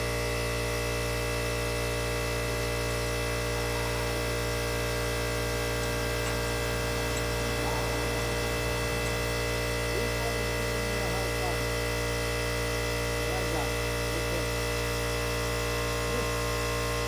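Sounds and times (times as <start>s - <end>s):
electrical machine hum: 0.0s - 17.0s.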